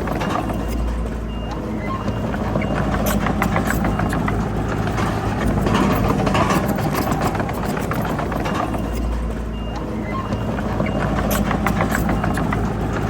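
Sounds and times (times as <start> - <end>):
diesel engine running: 0.0 - 13.0
metal clanks and knocks: 0.0 - 13.0.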